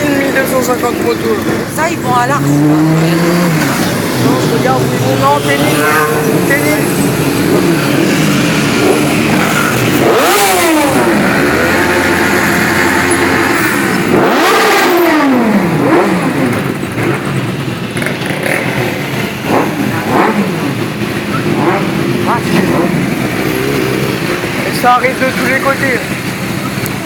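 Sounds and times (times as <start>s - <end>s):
motorcycles riding past revving: 2.4s - 17.4s.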